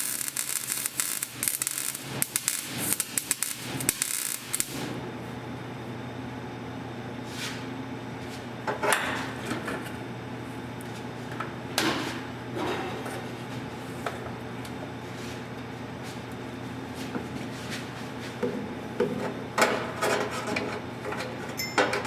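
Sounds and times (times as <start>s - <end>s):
welding arc crackling: 0.0s - 5.0s.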